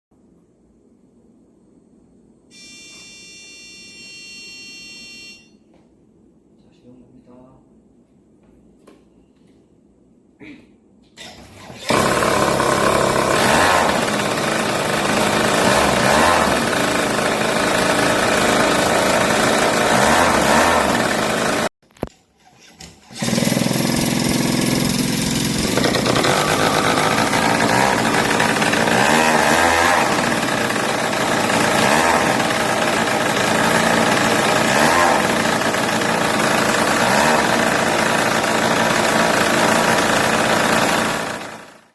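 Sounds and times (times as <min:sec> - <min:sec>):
small drone engine running: 0:11.9 - 0:21.7, 0:23.2 - 0:41.9.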